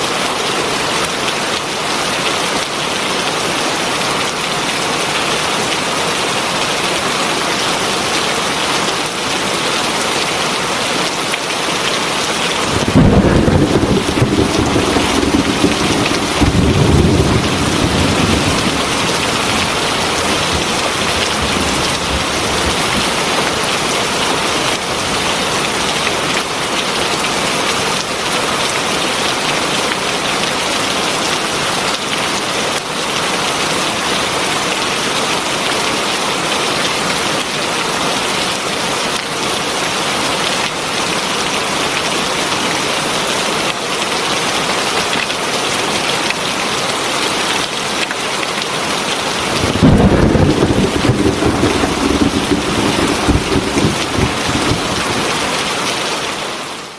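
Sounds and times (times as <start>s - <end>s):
heavy rain falling: 0.0s - 36.8s, 48.6s - 56.9s
thunder rumbling: 12.5s - 23.8s, 49.4s - 56.0s.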